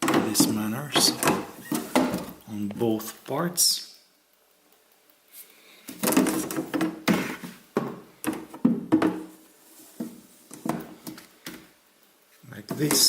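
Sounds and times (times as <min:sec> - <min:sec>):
freezer divider knocking and clattering: 0:00.0 - 0:02.4, 0:06.0 - 0:09.4.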